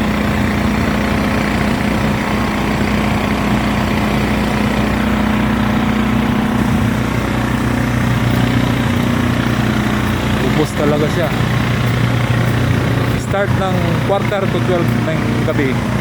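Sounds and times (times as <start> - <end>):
engine running with low hum: 0.0 - 16.0.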